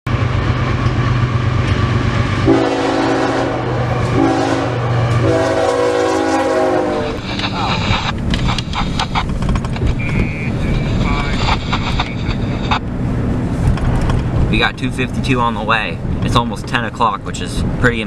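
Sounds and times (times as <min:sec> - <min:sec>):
locomotive engine running: 0:00.1 - 0:17.9
locomotive horn blasts: 0:02.4 - 0:07.6
rail clatter: 0:07.1 - 0:17.8.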